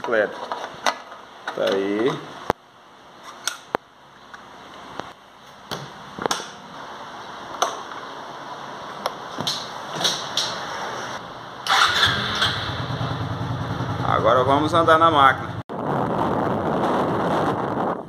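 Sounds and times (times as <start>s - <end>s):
motorcycle engine starting and idling: 11.6s - 15.6s.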